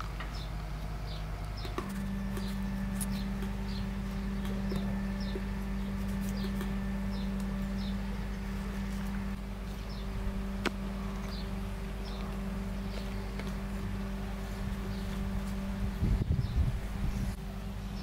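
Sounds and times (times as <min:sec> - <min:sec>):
low mechanical hum: 0:00.0 - 0:18.0
small bird chirping: 0:00.3 - 0:08.4, 0:09.7 - 0:10.2, 0:11.1 - 0:13.3.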